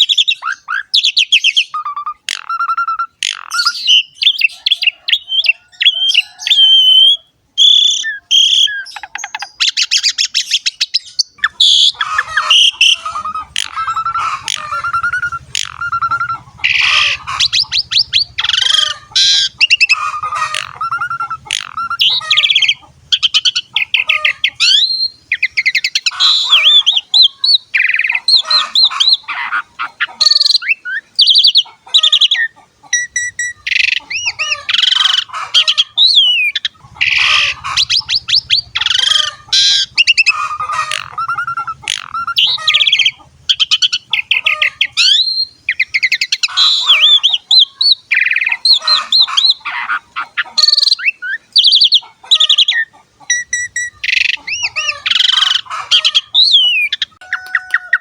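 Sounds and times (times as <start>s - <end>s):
starling singing: 0.0s - 58.0s.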